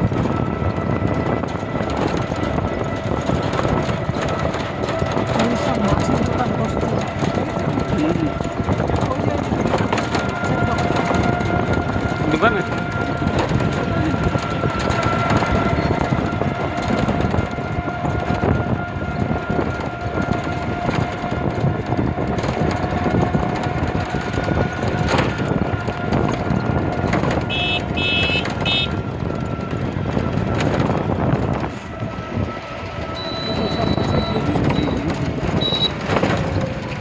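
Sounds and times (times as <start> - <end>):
continuous high drone: 0.0 - 37.0
train running on track: 0.0 - 37.0
short high beeps: 33.2 - 35.0, 35.6 - 36.0.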